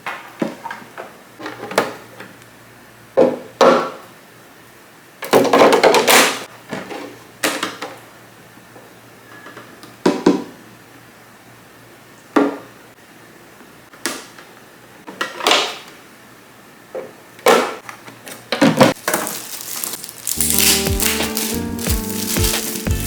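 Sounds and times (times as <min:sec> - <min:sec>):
background music: 0:20.3 - 0:23.0.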